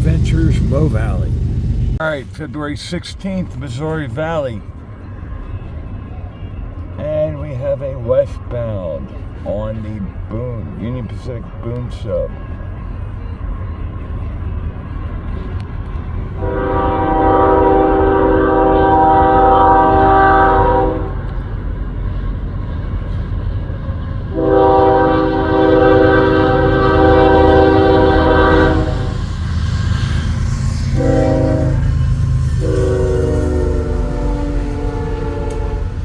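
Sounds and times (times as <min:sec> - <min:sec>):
freight train rumble: 0:00.0 - 0:36.0
locomotive air horn blasts: 0:16.4 - 0:21.4, 0:24.3 - 0:36.0.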